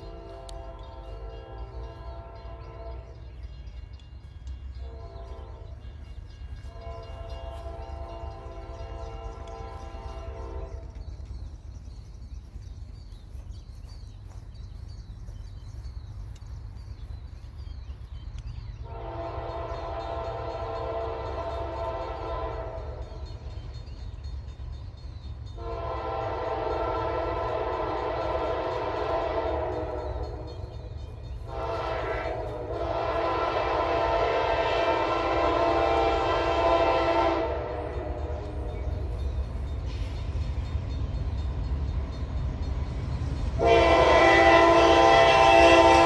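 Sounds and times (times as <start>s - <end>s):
locomotive air horn blasts: 0.0s - 3.2s, 4.8s - 5.8s, 6.7s - 11.0s, 18.8s - 23.3s, 25.6s - 30.8s, 31.5s - 38.8s, 43.5s - 46.0s
train rumbling: 0.0s - 46.0s.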